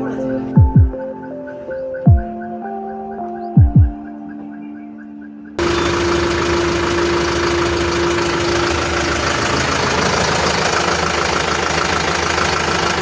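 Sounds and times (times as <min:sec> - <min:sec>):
diesel engine idling: 0:05.6 - 0:13.0.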